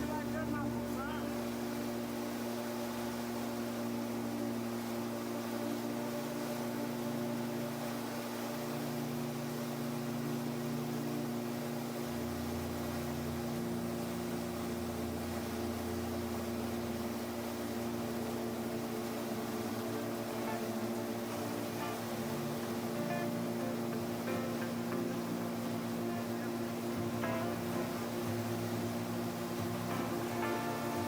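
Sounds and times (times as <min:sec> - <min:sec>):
gyroplane engine and propeller droning: 0:00.0 - 0:31.0.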